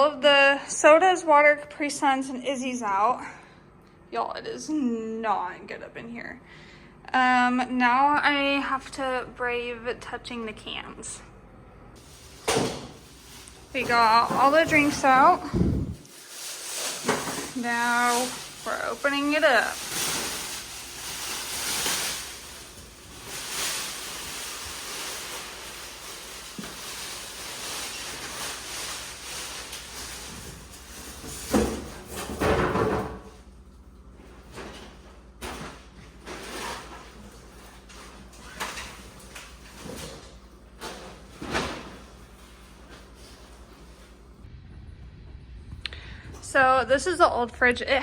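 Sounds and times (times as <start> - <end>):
refrigerator drawers being handled: 12.0 - 33.4, 34.2 - 44.2.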